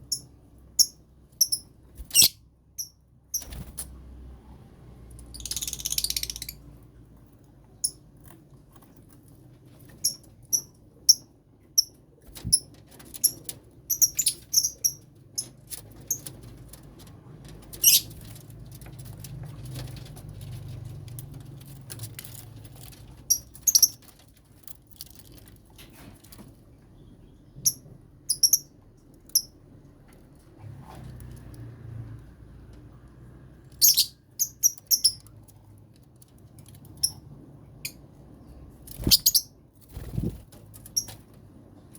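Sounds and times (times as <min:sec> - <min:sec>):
birds chirping shrilly: 0:39.0 - 0:39.5.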